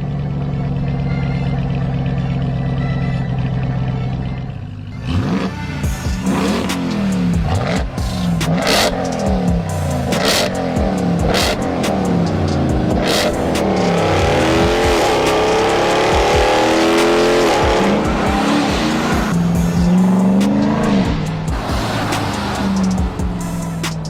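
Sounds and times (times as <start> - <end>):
truck engine accelerating hard: 0.0 - 24.0.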